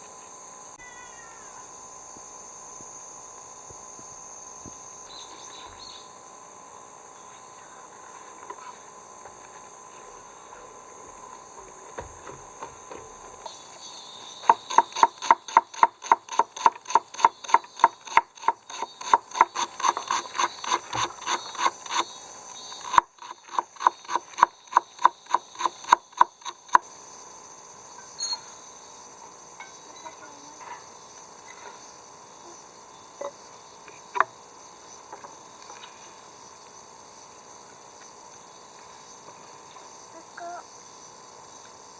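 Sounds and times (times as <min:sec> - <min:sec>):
rhythmic rasping strokes: 0:14.4 - 0:26.8.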